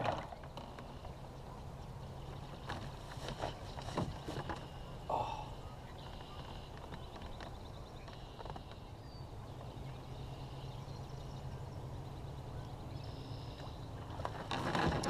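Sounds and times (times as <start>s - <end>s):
faint bird calls: 4.5s - 14.2s.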